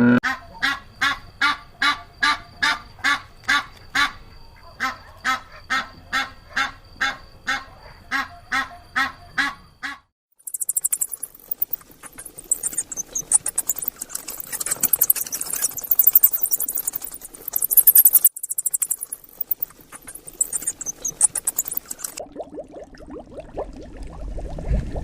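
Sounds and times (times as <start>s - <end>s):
small animal high-pitched squeaks: 10.5s - 22.2s.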